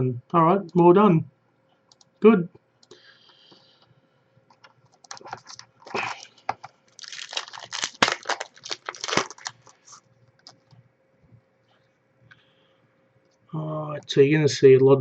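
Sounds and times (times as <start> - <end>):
foil wrapper tearing and crinkling: 6.9 - 10.5.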